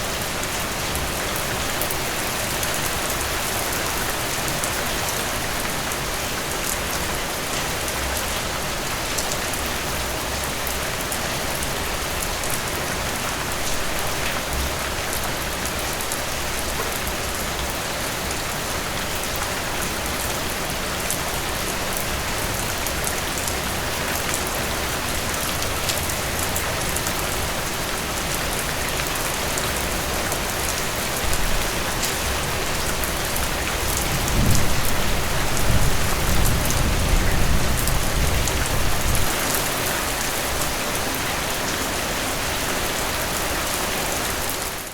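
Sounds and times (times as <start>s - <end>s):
heavy rain: 0.0s - 44.9s
rumble of thunder: 34.0s - 39.4s.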